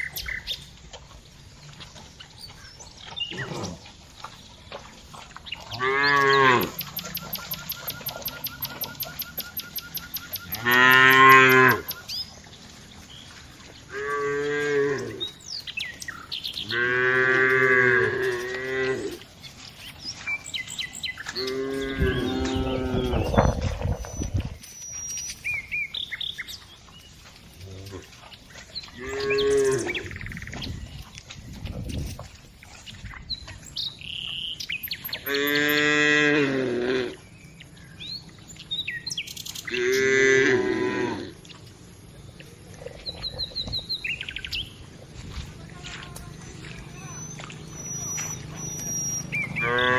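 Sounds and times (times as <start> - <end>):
birds chirping: 0.0 - 36.2, 37.0 - 49.9
cows mooing: 5.6 - 9.7, 10.3 - 12.0, 13.8 - 15.4, 16.6 - 19.3, 21.3 - 23.7, 29.0 - 30.2, 35.2 - 37.2, 39.6 - 41.4, 46.4 - 49.9.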